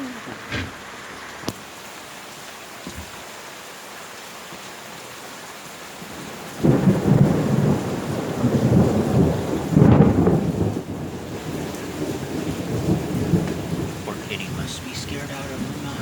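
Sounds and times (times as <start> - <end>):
steady rain: 0.0 - 16.0
thunder rumbling: 6.0 - 16.0.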